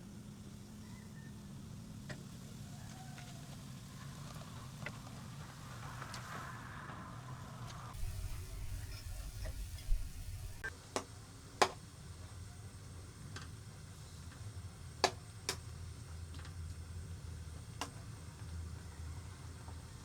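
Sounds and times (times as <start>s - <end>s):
low steady rumble: 8.0s - 10.7s.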